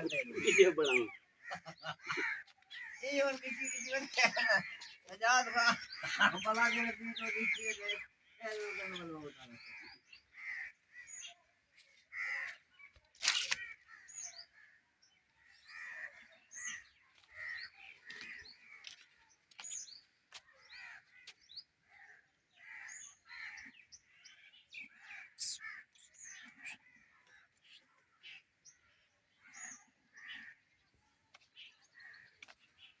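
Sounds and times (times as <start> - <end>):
bird repeated calls: 0.0 - 14.8, 15.4 - 33.0
small birds high chirps: 22.9 - 33.0.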